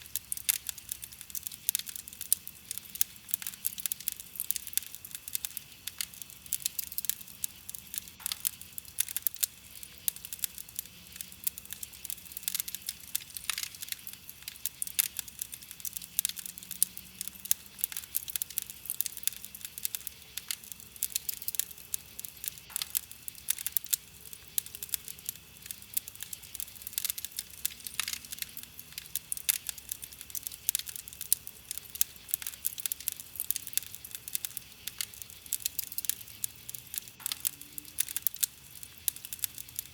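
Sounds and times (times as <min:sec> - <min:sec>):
campfire pops and snaps: 0:00.0 - 0:39.9
hiss of burning wood: 0:00.0 - 0:39.9.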